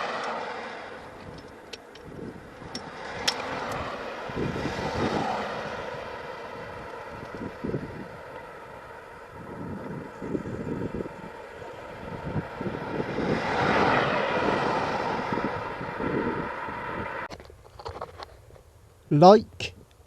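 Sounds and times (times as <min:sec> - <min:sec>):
tyre and road rumble: 0:00.0 - 0:20.0.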